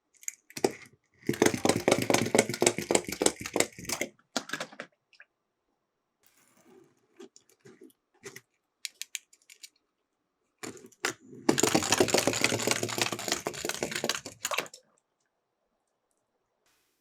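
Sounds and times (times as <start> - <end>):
toy cars clicking and tapping: 0.2 - 4.8, 7.4 - 9.8, 10.6 - 14.8
toy cars rattling down track: 1.3 - 4.1, 11.5 - 14.8.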